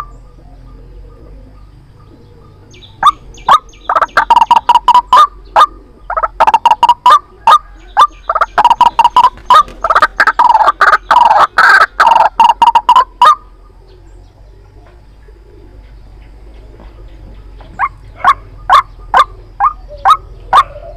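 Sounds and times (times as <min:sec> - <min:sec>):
bird calling rapid repeated notes: 0:02.8 - 0:07.2, 0:08.3 - 0:13.4.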